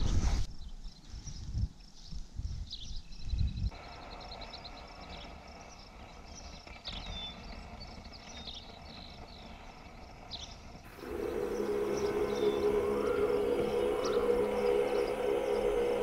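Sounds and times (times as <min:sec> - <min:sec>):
birds chirping and whistling: 0:02.8 - 0:16.0
steady outdoor hiss: 0:03.7 - 0:06.9, 0:09.5 - 0:16.0.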